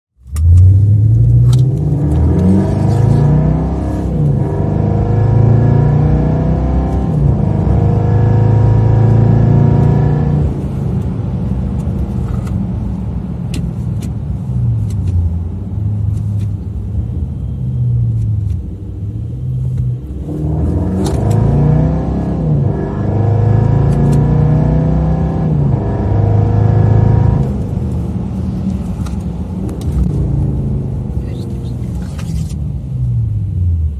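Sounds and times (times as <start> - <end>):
diesel engine revving: 0.4 - 10.7, 20.1 - 32.4.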